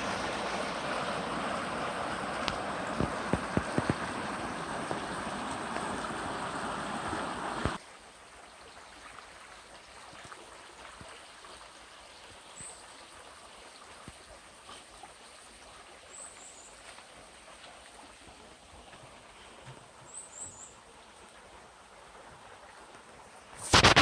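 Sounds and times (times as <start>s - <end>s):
stream water rushing: 0.0s - 24.0s
light ticks: 2.4s - 4.1s.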